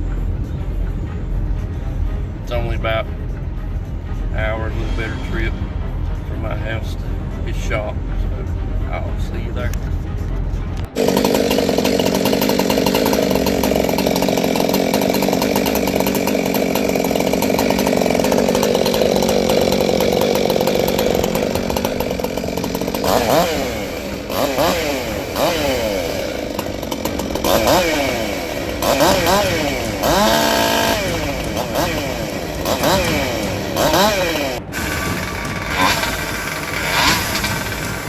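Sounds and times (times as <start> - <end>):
chainsaw engine revving: 10.8 - 38.0.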